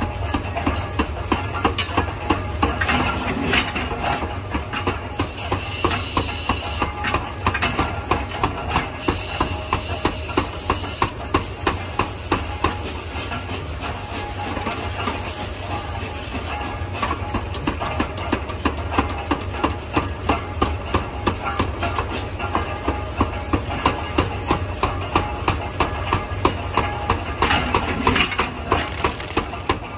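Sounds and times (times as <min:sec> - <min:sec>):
low hum of machinery: 0:00.0 - 0:29.9
hiss: 0:04.8 - 0:07.2, 0:08.7 - 0:17.3.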